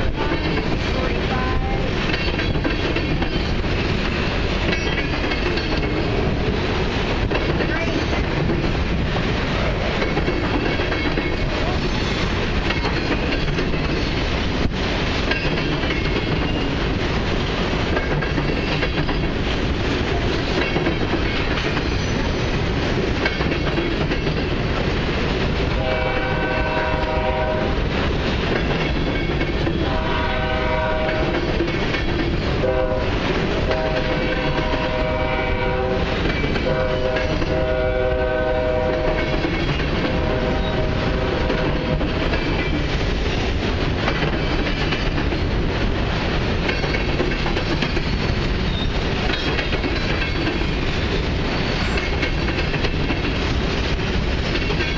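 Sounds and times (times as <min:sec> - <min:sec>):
freight train rumbling past: 0:00.0 - 0:54.9
wheels clacking over rail joints: 0:00.0 - 0:54.9
train horn blasts: 0:25.8 - 0:27.8, 0:29.8 - 0:31.4, 0:32.6 - 0:39.4, 0:40.1 - 0:42.0.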